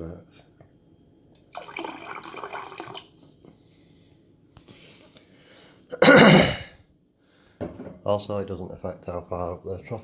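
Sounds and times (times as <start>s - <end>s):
water running from fridge dispenser: 1.5s - 3.1s.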